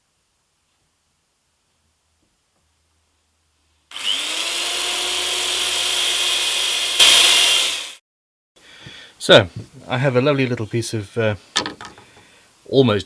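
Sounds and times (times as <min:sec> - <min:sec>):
electric drill whining: 0:03.9 - 0:08.0.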